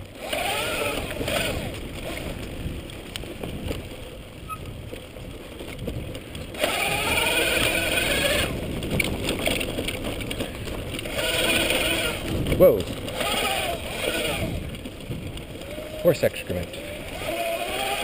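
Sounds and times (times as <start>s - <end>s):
electric motor whine: 0.0s - 2.5s, 6.5s - 8.6s, 10.9s - 14.9s, 16.7s - 18.0s
tyres and wind rumble: 0.0s - 18.0s.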